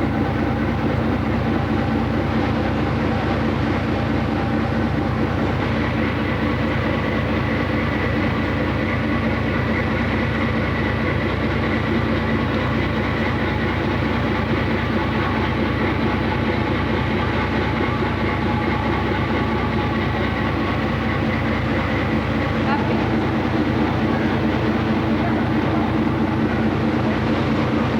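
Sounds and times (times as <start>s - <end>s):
ship engine drone: 0.0s - 27.9s.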